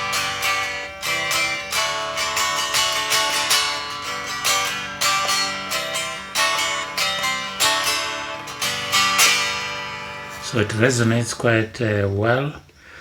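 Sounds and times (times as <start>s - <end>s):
guitar picking and strumming: 0.0s - 12.1s.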